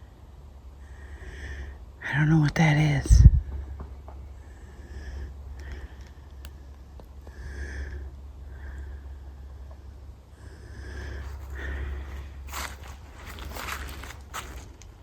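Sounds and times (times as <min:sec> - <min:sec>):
low rumble of wind: 0:00.0 - 0:15.0
light footstep clicks: 0:11.3 - 0:15.0.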